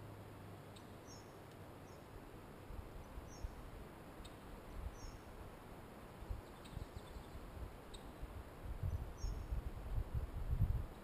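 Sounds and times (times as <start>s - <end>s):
faint high bird chirps: 0.7s - 2.1s, 3.0s - 3.6s, 4.2s - 5.3s, 6.3s - 8.2s, 8.9s - 9.5s.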